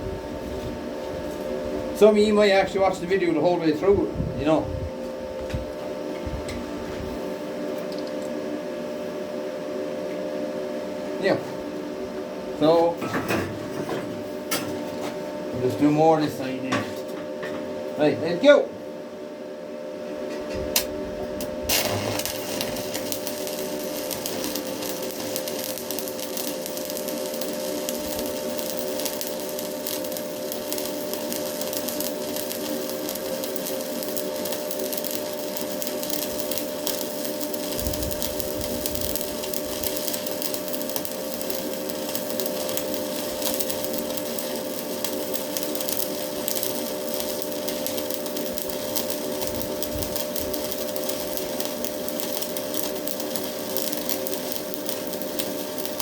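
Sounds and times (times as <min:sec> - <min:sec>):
welding arc crackling and sizzling: 0:00.0 - 0:04.6, 0:05.4 - 0:08.3, 0:15.6 - 0:17.0, 0:20.7 - 0:56.0
steady hum: 0:00.0 - 0:56.0.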